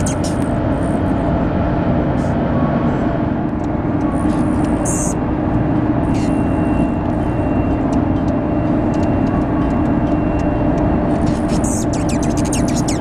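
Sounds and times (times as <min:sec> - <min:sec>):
hummingbird chirps: 0:00.0 - 0:00.4, 0:10.7 - 0:13.0
faint constant hum: 0:00.0 - 0:13.0
steady low rumble: 0:00.0 - 0:13.0.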